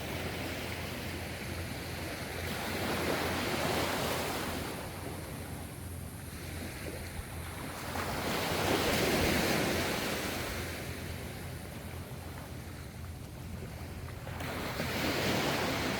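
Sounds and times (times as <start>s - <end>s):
low rumble of surf: 0.0s - 15.9s
waves washing onto shore: 6.3s - 15.9s.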